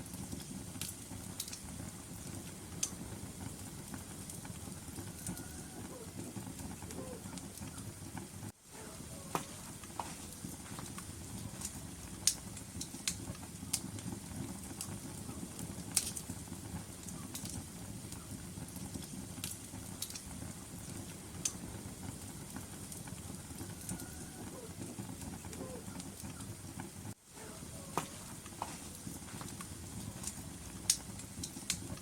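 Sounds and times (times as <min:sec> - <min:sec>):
fire burning with crackles: 0:00.0 - 0:32.0.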